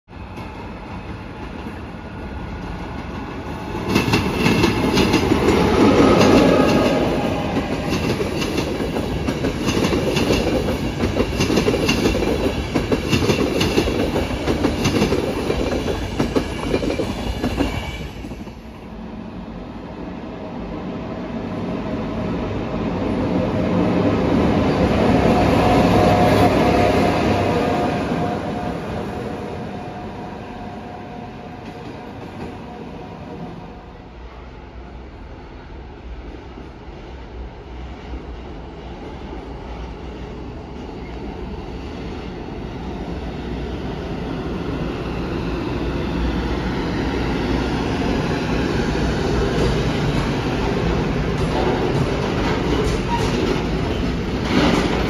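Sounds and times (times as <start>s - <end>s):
electric locomotive humming: 0.2s - 55.0s
train wheels clattering over rail joints: 49.6s - 55.0s.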